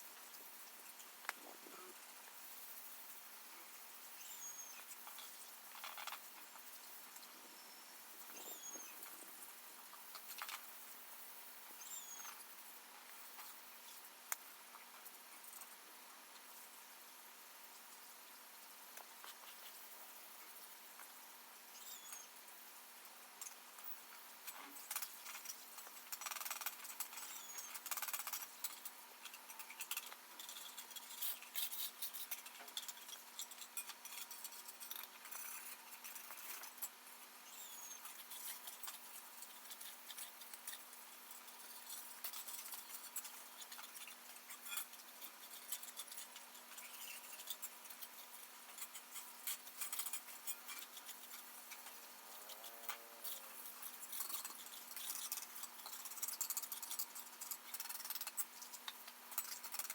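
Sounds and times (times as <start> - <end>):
faint high chirps: 4.1 - 5.2, 7.2 - 9.4, 11.7 - 12.4, 21.7 - 22.4.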